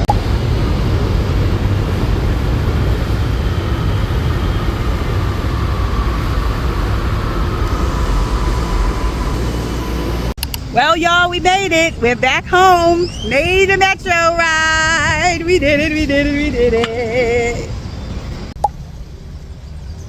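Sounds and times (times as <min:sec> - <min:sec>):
high whine: 0:00.0 - 0:13.8
metro train rumbling: 0:00.0 - 0:20.0.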